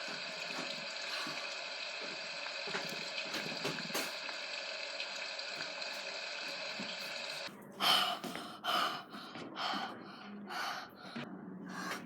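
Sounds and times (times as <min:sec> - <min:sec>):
running water: 0:00.0 - 0:07.5
person gasping sharp breaths: 0:07.8 - 0:12.0.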